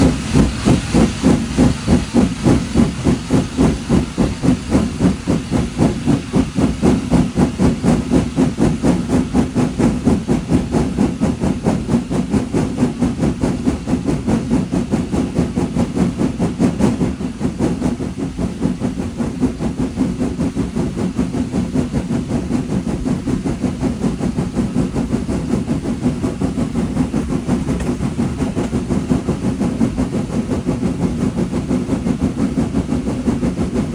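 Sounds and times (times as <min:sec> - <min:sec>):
steam locomotive chuffing: 0:00.0 - 0:33.9.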